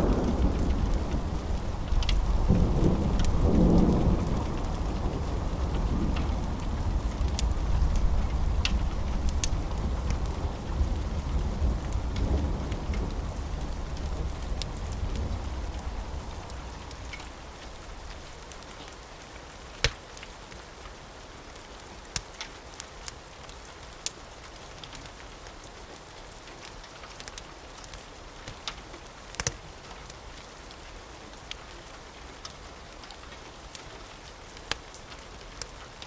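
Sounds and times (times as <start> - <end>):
low rumble of thunder: 0.0 - 18.6
steady rain: 0.0 - 36.0.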